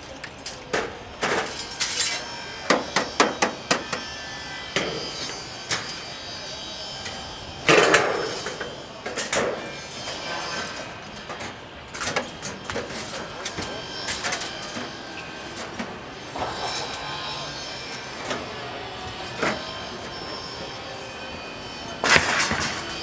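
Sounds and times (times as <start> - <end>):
hammer striking sheet metal: 2.6 - 4.1.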